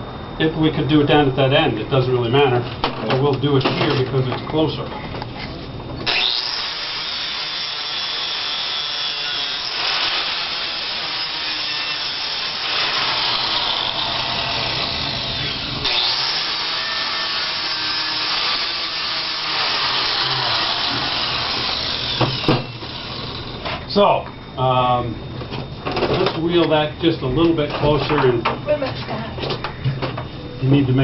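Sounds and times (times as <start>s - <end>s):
power grinder on steel: 6.1s - 23.6s.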